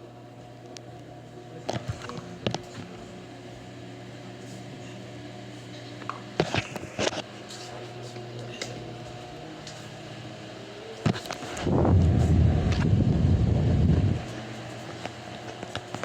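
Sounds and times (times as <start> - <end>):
electric fan motor hum: 0.0 - 16.0.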